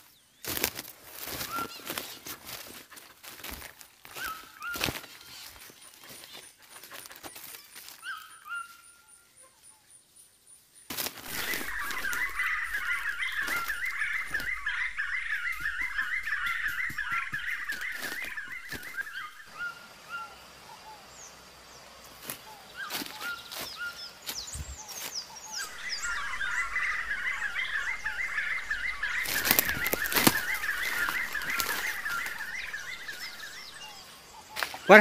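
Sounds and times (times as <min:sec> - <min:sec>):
higher bird chirps: 0:03.5 - 0:21.5, 0:22.4 - 0:35.0
bird chattering call: 0:11.3 - 0:20.4, 0:25.3 - 0:35.0.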